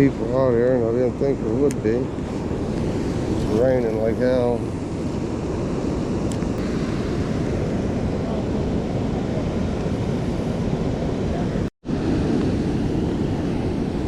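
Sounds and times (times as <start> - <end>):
water rushing over spillway: 2.3 - 4.8.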